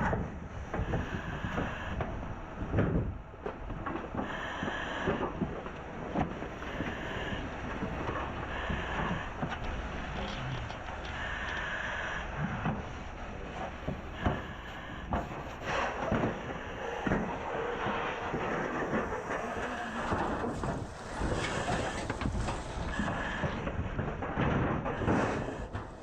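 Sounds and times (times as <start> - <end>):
steady rushing noise: 0.0 - 26.0
knocking and scraping of hand tools: 13.6 - 26.0.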